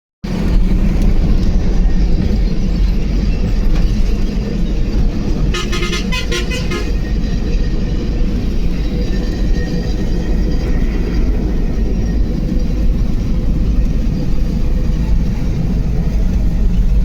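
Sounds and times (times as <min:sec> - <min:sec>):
road noise: 0:00.2 - 0:17.0
truck engine rumble: 0:00.2 - 0:17.0
vehicle horn short toots: 0:05.5 - 0:07.0.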